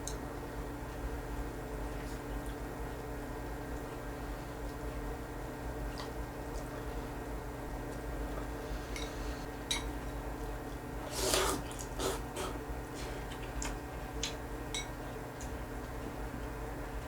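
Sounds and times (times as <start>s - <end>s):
slurping: 11.0s - 13.2s.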